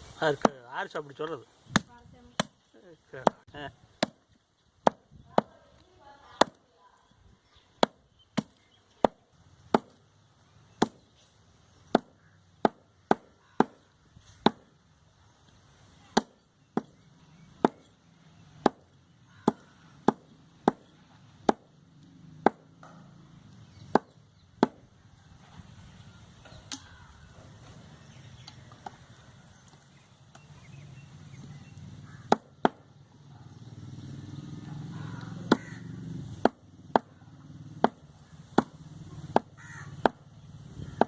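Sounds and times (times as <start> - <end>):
cleaver chopping meat: 11.9 - 13.8, 14.4 - 14.7, 16.1 - 17.0, 17.6 - 17.9, 18.6 - 21.7, 22.4 - 22.9, 23.9 - 24.8, 32.1 - 32.8, 35.2 - 37.2, 37.8 - 40.2.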